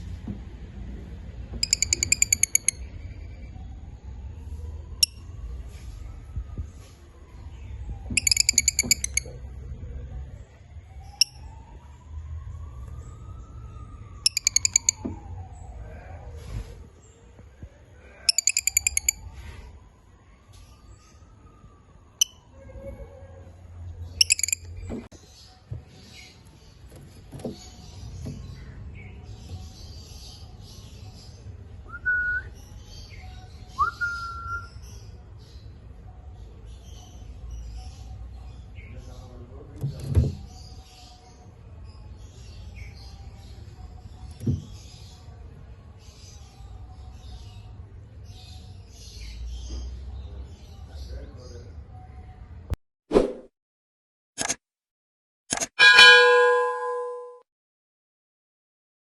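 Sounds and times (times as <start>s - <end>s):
lovebirds chirping: 1.6s - 3.6s, 7.5s - 9.6s, 13.0s - 15.8s, 18.2s - 19.2s, 24.0s - 31.8s.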